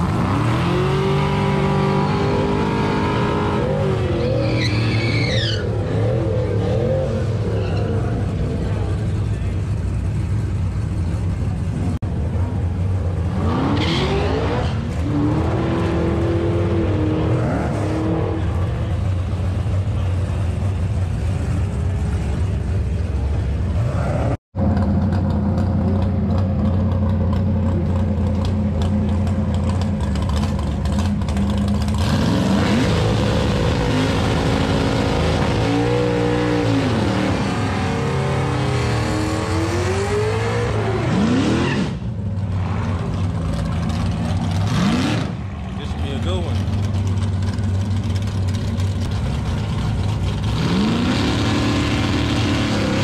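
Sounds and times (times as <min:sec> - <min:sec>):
engine revving into tyre burnout: 0:00.0 - 0:08.1, 0:13.3 - 0:18.7, 0:32.0 - 0:43.1, 0:44.6 - 0:45.6, 0:50.4 - 0:53.0
drag car engines idling and revving: 0:00.0 - 0:53.0.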